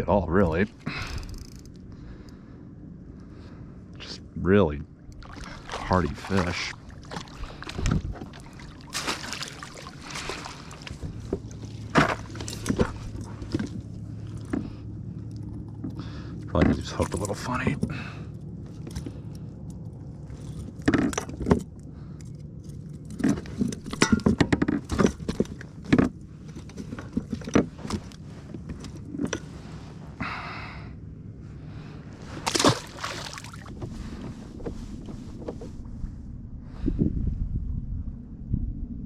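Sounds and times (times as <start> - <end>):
clicks and knocks of gear: 0.9 - 1.8, 10.8 - 18.0, 18.6 - 29.6.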